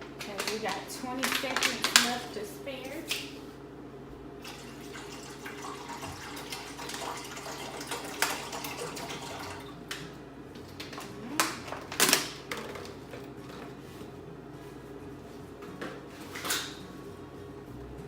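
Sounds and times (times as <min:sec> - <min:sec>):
water running and splashing: 0:04.5 - 0:09.7.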